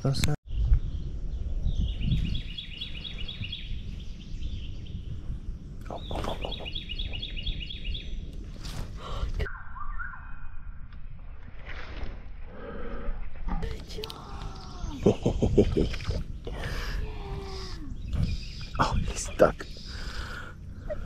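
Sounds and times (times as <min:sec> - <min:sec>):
songbird trilling: 0:05.9 - 0:08.3, 0:17.4 - 0:21.0.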